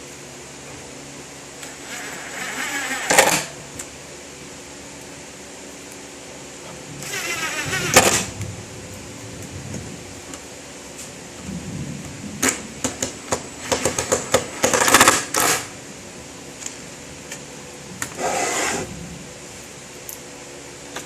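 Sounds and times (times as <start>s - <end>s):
short scraping: 18.1s - 18.9s.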